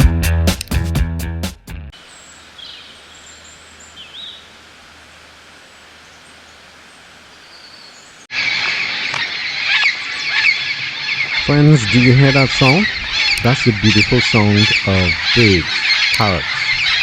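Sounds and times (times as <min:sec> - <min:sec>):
bird chirps: 0:02.0 - 0:04.6, 0:05.7 - 0:17.0
faint outdoor hiss: 0:02.0 - 0:08.6
parrots squawking: 0:07.7 - 0:17.0.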